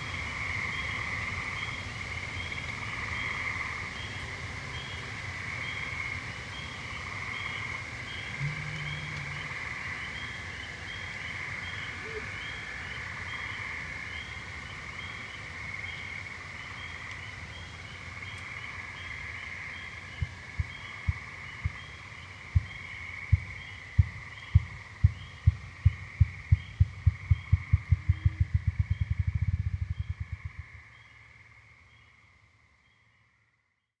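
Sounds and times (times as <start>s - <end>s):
frogs croaking: 0.0s - 33.7s
birds calling: 6.5s - 14.4s
grouse drumming thumps: 8.3s - 10.2s, 20.2s - 21.9s, 22.6s - 30.8s.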